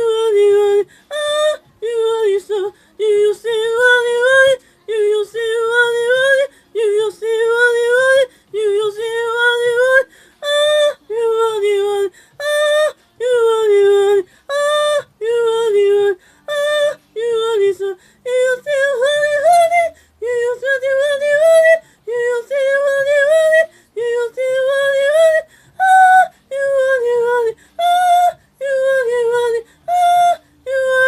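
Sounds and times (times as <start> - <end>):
breaths: 0.8 - 1.1, 2.7 - 3.0, 4.6 - 4.9, 6.5 - 6.8, 8.3 - 8.6, 10.1 - 10.4, 12.1 - 12.4, 14.2 - 14.5, 16.2 - 16.5, 18.0 - 18.2, 19.9 - 20.2, 21.8 - 22.1, 23.7 - 24.0, 25.5 - 26.5, 27.6 - 27.8, 29.6 - 30.6.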